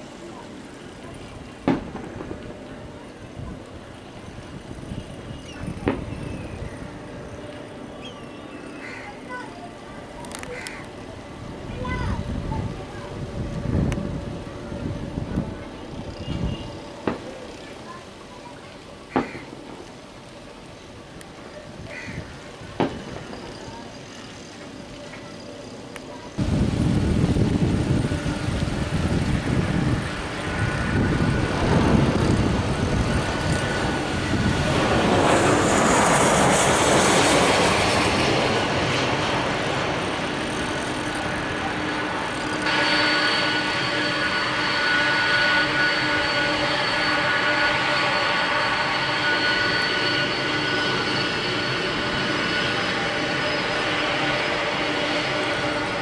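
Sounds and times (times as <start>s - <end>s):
jet engines rumbling: 0.0s - 56.0s
engine whining tones: 25.4s - 56.0s.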